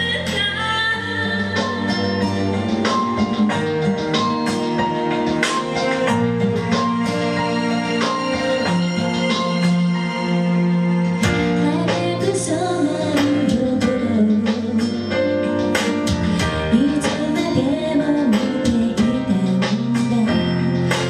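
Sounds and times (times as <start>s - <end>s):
guitar: 0.0s - 21.0s
percussion hits: 1.6s - 10.1s
person singing: 11.5s - 15.4s, 16.6s - 20.8s.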